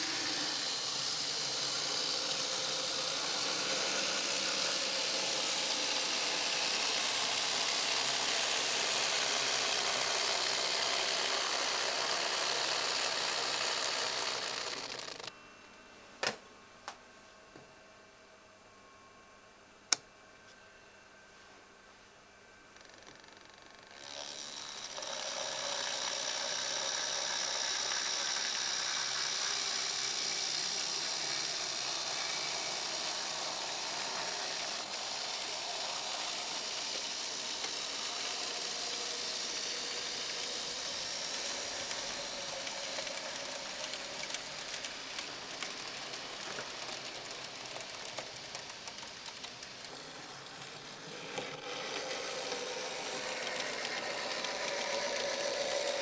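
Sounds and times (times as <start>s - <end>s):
model train motor whine: 0.0s - 15.4s, 22.7s - 56.0s
wheels clicking over track: 23.9s - 56.0s.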